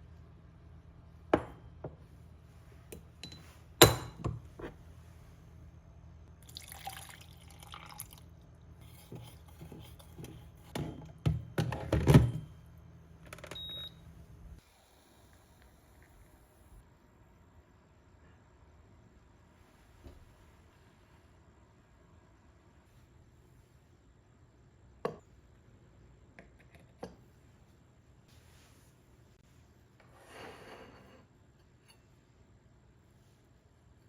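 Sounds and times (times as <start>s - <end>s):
low steady hum: 0.0s - 29.8s
dishware knocking and clinking: 3.2s - 4.4s.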